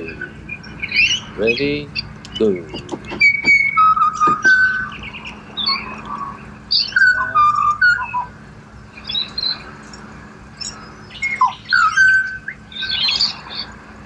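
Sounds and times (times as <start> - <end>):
birds singing whistled notes: 0.0 - 14.0.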